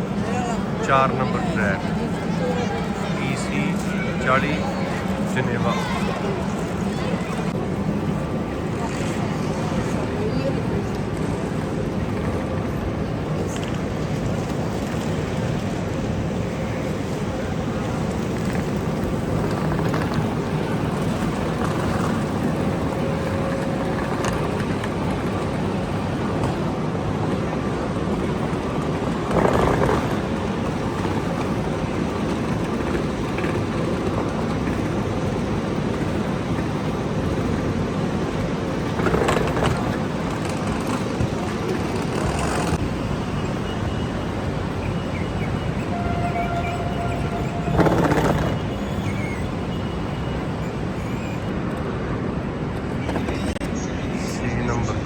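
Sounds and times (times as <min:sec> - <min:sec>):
electric train rumbling: 0:00.0 - 0:55.0.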